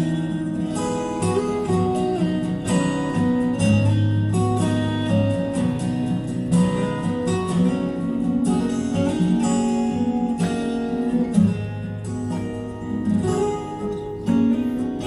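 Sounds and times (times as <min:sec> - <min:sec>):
plucked acoustic guitar music: 0:00.0 - 0:15.0.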